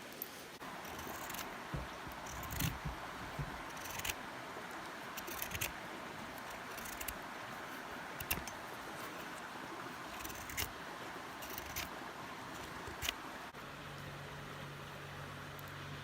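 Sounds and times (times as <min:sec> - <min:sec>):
outdoor background hiss: 0:00.0 - 0:16.0
light clicks and knocks: 0:00.2 - 0:07.2.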